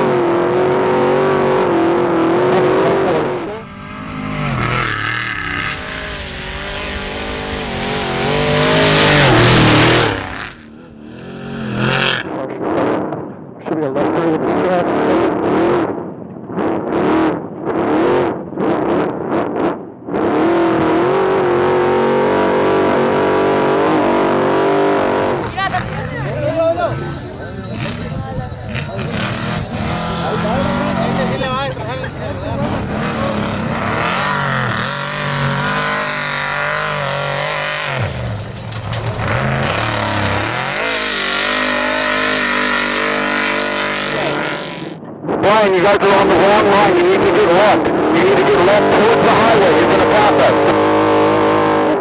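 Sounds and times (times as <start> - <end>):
truck engine revving: 0.0 - 12.4, 20.4 - 45.0.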